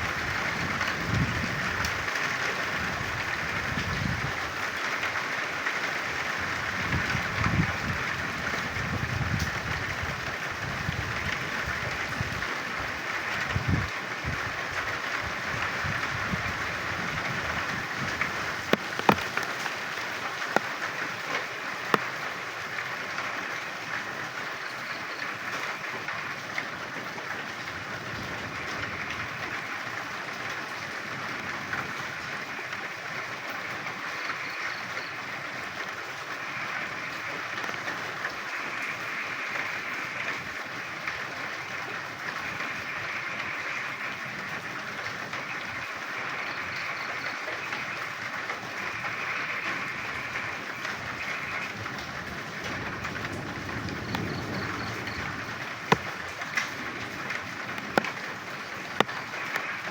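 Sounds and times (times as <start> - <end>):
rainfall hiss: 0.0 - 59.9
frogs croaking: 18.5 - 22.5, 33.4 - 59.9.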